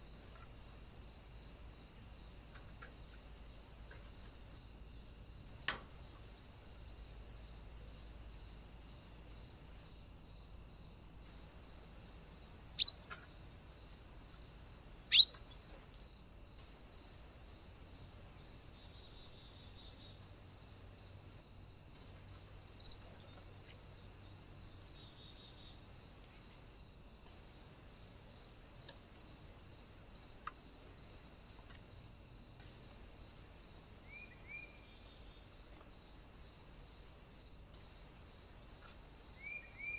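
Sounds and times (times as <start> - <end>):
short sharp bird chirps: 12.8 - 13.0, 15.1 - 15.4.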